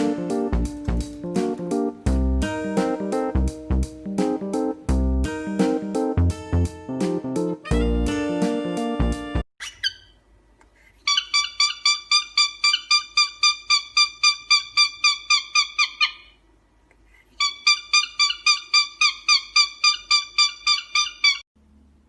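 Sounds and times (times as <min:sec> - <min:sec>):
young animal chirping: 0:09.6 - 0:10.2, 0:11.0 - 0:16.4, 0:17.3 - 0:21.4.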